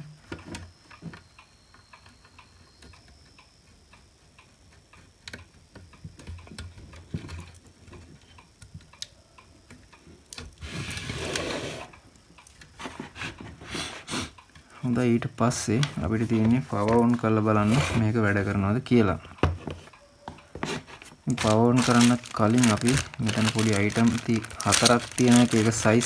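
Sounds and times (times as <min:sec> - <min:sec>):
rustling scrape: 0:20.6 - 0:26.0
plastic parts clicking and tapping: 0:21.3 - 0:26.0.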